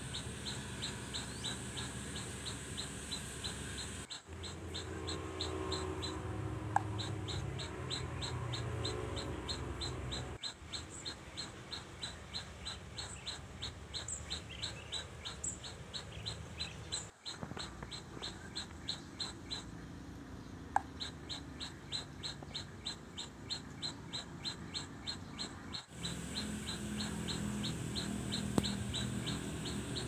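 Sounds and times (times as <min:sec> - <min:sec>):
small bird chirping: 0:00.0 - 0:30.0.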